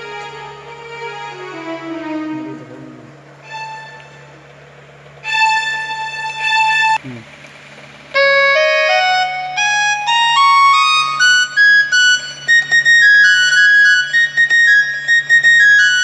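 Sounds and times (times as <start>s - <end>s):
electronic keyboard flute notes: 0.0s - 4.0s, 8.2s - 16.0s
faint low hum: 0.0s - 4.6s.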